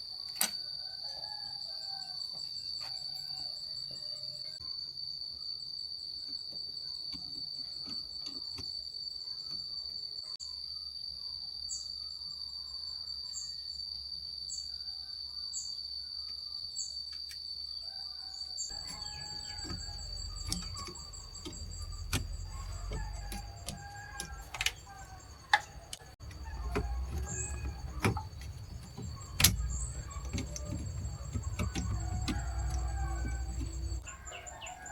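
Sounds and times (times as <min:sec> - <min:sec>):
crickets trilling: 0:00.0 - 0:34.9
scattered clicks and knocks: 0:18.7 - 0:34.1.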